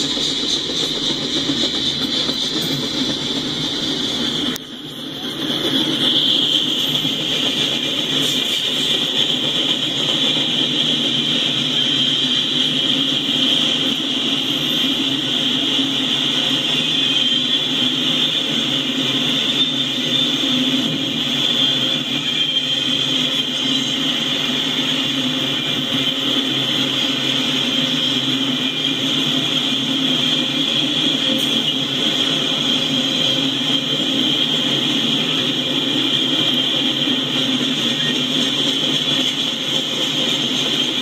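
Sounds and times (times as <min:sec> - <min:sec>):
train cars rumbling and rattling: 0:00.0 - 0:41.0.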